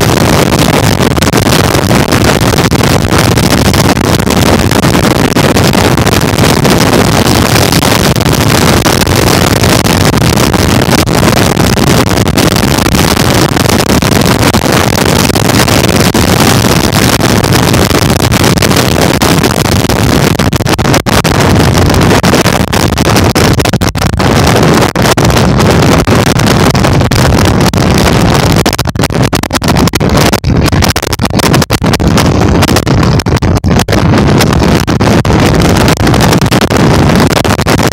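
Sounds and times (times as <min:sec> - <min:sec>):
wind rushing over microphone: 0:00.0 - 0:37.9.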